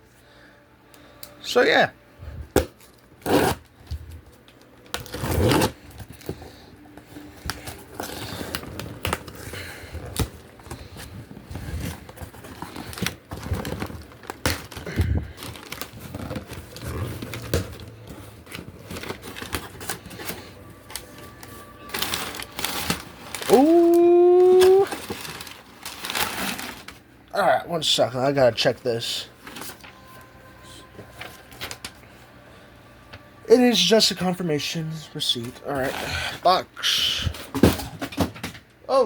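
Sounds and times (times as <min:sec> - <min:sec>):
packaging rustling and tearing: 0:02.7 - 0:27.1, 0:29.3 - 0:30.1, 0:30.8 - 0:32.0.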